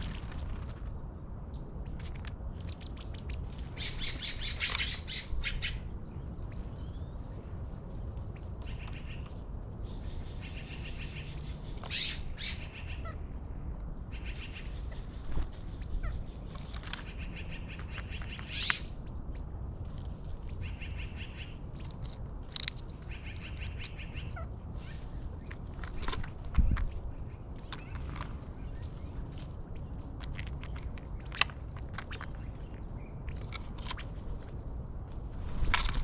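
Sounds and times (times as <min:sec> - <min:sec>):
trilled bird song: 0:00.0 - 0:13.2, 0:14.1 - 0:19.7, 0:20.3 - 0:34.1
low outdoor rumble: 0:00.0 - 0:36.0
sharp bird calls: 0:01.8 - 0:07.1, 0:09.9 - 0:13.3.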